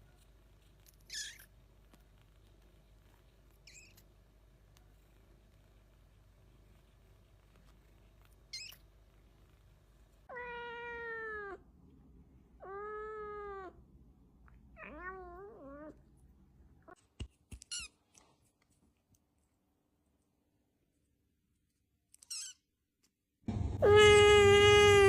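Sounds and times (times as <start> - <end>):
cat meowing: 1.0 - 1.5, 10.3 - 11.6, 12.6 - 13.8, 14.7 - 16.0, 23.8 - 25.0.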